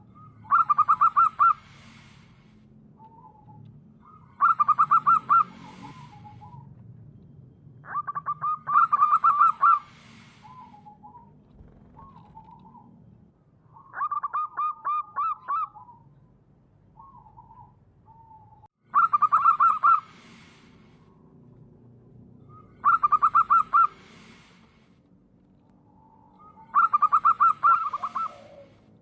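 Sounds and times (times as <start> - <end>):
dove cooing: 0.0 - 1.6, 4.4 - 6.7, 7.8 - 12.9, 17.0 - 20.6, 22.5 - 24.5, 26.4 - 28.8.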